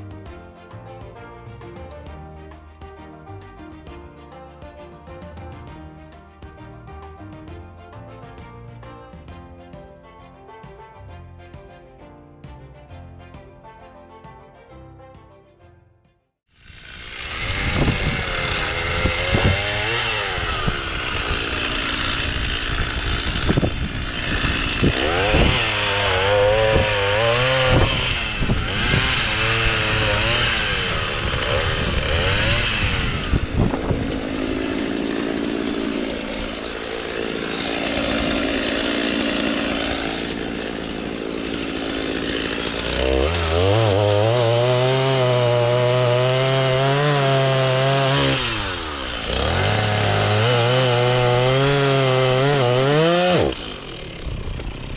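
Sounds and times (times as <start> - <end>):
chainsaw cutting log: 16.6 - 54.9.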